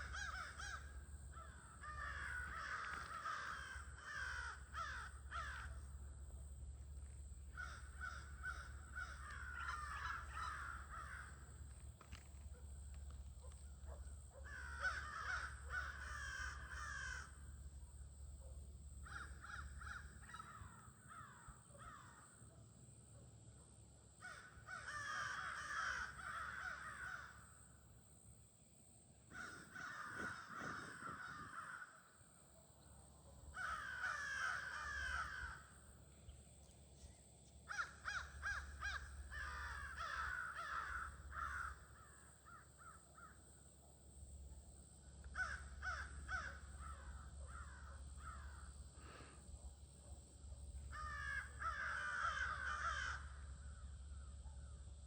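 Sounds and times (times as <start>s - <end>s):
crows cawing: 0.0s - 6.0s, 7.5s - 12.3s, 13.4s - 17.6s, 19.0s - 22.4s, 24.2s - 27.5s, 29.3s - 32.3s, 33.5s - 35.8s, 37.7s - 43.4s, 45.2s - 49.4s, 50.9s - 54.4s.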